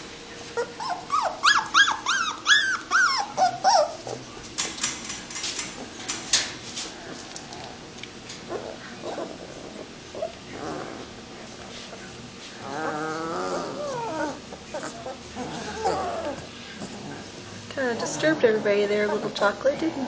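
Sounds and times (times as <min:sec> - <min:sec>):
puppies whining and squealing: 0:00.4 - 0:04.3, 0:08.5 - 0:11.1, 0:12.6 - 0:17.3.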